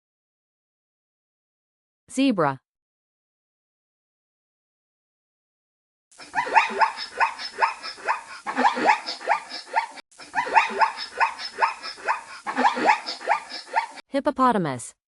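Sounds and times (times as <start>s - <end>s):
zebra barking yelps: 6.3s - 14.0s.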